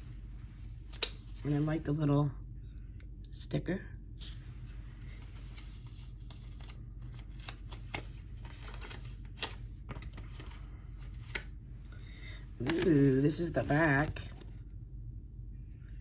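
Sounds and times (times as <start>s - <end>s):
paper rustling: 0.0s - 1.8s, 4.2s - 11.6s, 12.2s - 14.6s
steady low hum: 0.0s - 16.0s.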